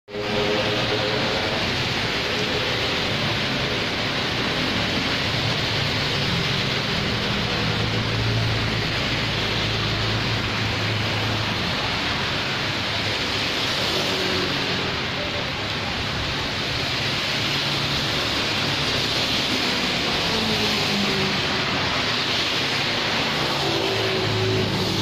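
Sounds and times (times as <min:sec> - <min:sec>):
rain falling on a street: 0:00.1 - 0:25.0
passing vehicle engine hum: 0:17.4 - 0:25.0.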